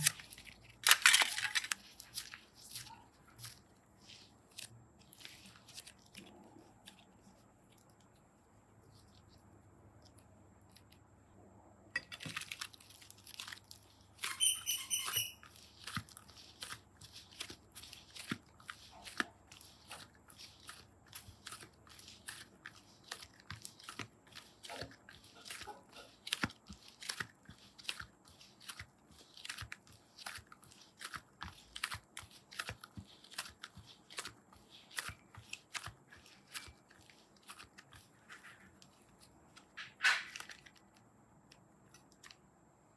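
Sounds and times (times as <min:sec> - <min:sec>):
slime squishing with sticky pops: 0:00.0 - 0:08.3, 0:15.4 - 0:42.6
high squeak: 0:14.2 - 0:15.4.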